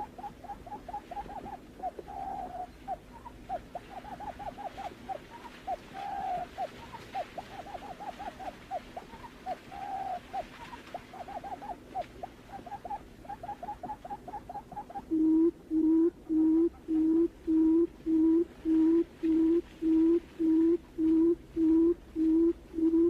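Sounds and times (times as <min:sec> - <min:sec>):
buttonquail calling: 0:00.0 - 0:23.0.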